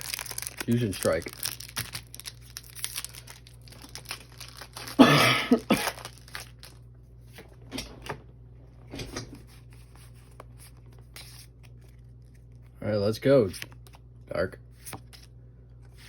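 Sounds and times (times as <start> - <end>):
foil pack crinkling and tearing: 0.0 - 6.8.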